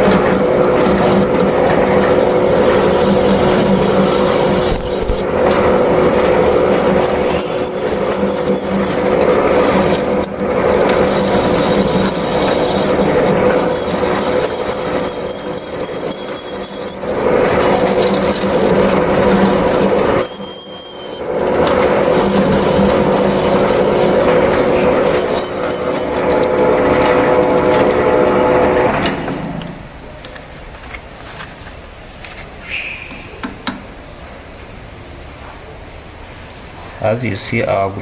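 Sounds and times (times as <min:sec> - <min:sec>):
cutting tool squealing: 0:00.0 - 0:28.0
lathe machine hum: 0:00.0 - 0:30.1.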